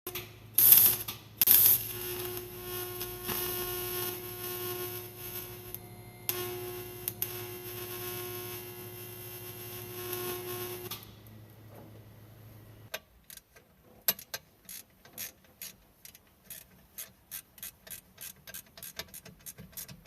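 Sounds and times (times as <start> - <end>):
machine humming: 0.5 - 12.9.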